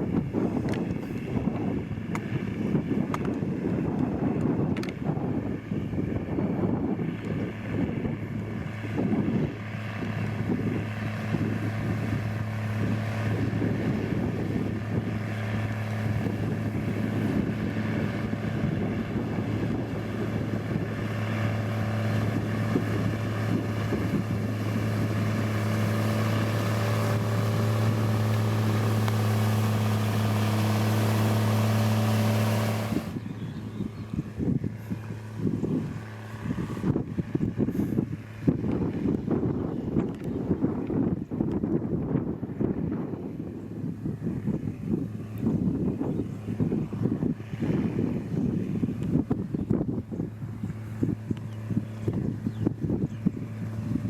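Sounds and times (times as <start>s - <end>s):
diesel engine humming: 9.6s - 38.4s.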